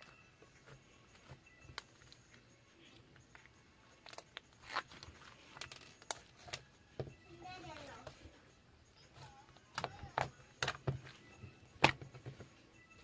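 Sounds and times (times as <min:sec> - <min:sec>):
clicks and crunching: 0:03.3 - 0:06.6.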